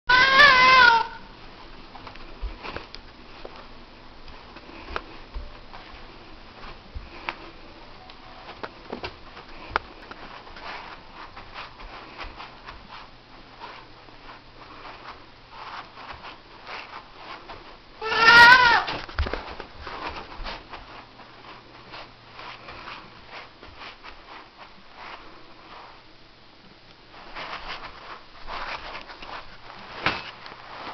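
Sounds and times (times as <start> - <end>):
cat meowing: 0.1 - 1.2, 18.0 - 18.9
light taps and scuffs: 1.4 - 17.8, 18.6 - 26.0, 26.9 - 30.9.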